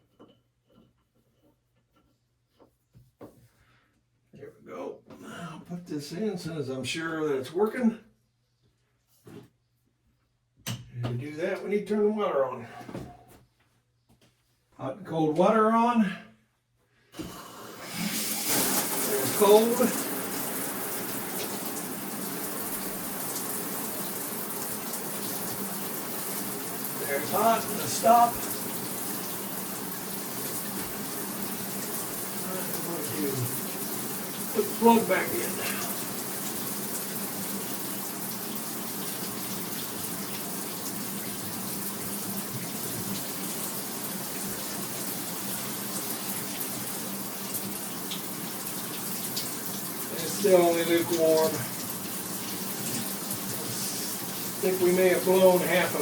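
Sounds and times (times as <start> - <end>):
shower water running: 17.2 - 56.0.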